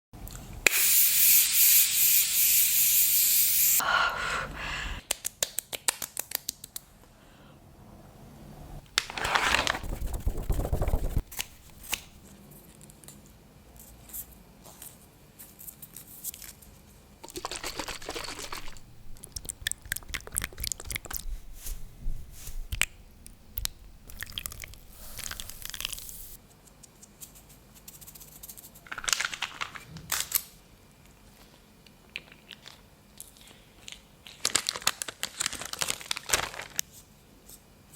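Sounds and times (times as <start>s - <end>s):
spray hissing: 0.7s - 3.8s, 24.9s - 26.4s
rubbing and patting on skin: 9.2s - 12.2s, 19.9s - 22.9s, 24.8s - 26.4s.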